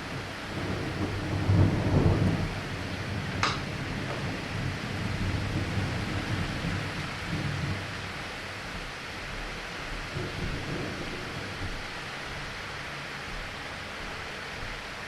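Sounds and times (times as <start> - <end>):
low thunder rumble: 0.0 - 15.0
steady rain falling: 0.0 - 15.0.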